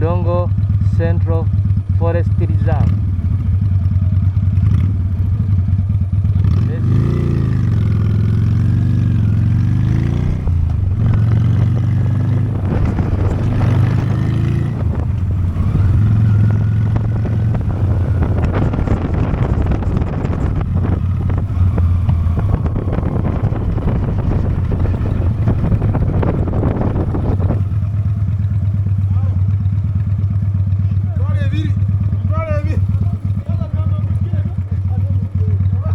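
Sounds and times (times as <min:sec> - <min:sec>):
road noise: 0:00.0 - 0:35.8
motorcycle engine running: 0:00.0 - 0:35.9
wind: 0:00.0 - 0:35.9.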